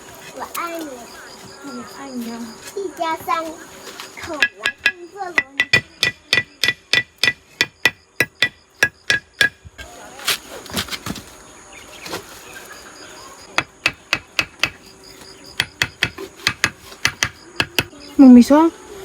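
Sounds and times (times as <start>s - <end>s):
scattered knocks: 4.2s - 9.8s, 13.5s - 17.9s.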